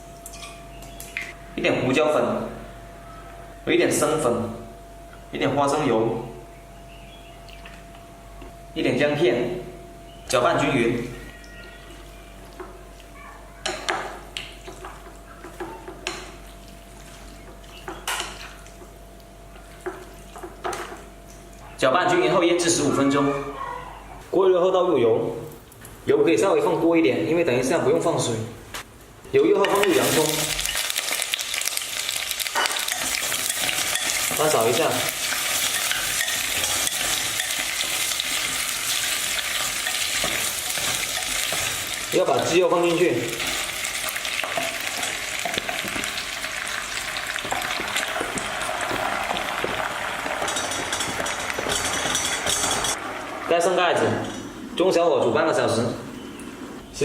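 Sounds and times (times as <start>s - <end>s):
chicken being stirred in a bowl: 29.6s - 53.0s
onion sizzling in hot oil: 29.8s - 53.6s
utensil clinking against bowl: 32.6s - 41.8s, 47.5s - 53.0s.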